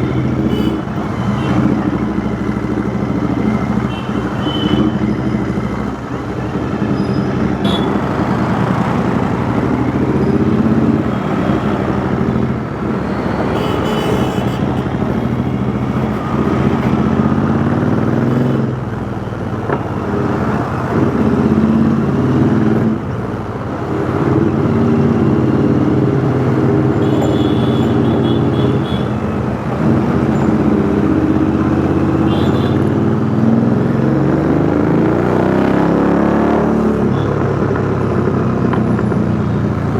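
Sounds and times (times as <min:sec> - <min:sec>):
motorcycle engine revving: 0:00.0 - 0:18.9
road and traffic noise: 0:00.0 - 0:39.9.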